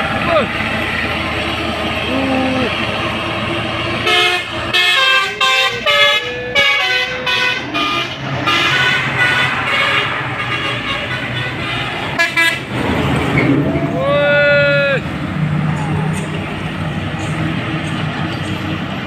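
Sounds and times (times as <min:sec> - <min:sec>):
truck engine running: 0:00.0 - 0:19.0
truck horn sliding notes: 0:04.0 - 0:13.9.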